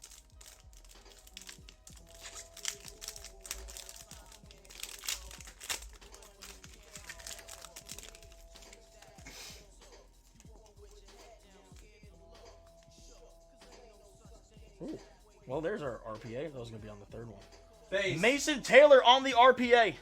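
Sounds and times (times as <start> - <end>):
foil wrappers tearing and crinkling: 0.0 - 9.2
faint background music: 0.0 - 20.0.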